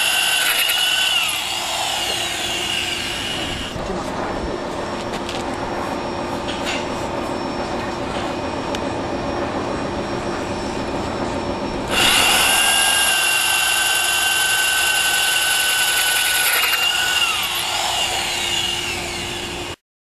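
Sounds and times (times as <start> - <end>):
power drill whining into tile: 0.0 - 3.8, 11.9 - 19.8.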